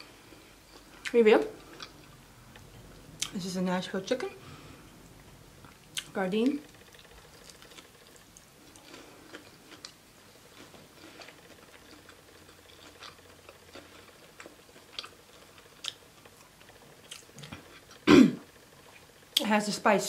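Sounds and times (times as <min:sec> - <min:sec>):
person chewing: 0:00.0 - 0:03.4, 0:05.0 - 0:06.1, 0:06.7 - 0:18.0.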